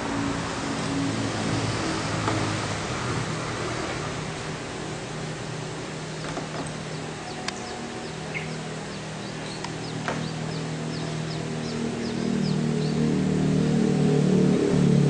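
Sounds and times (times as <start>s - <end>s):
low mechanical hum: 0.0s - 15.0s
small birds chirping: 4.8s - 13.3s.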